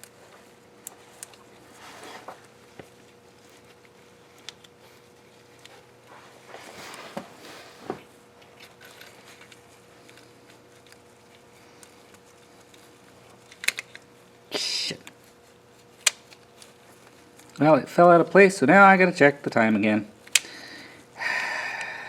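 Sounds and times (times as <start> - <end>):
metal parts and tools rustling: 3.3 - 14.2.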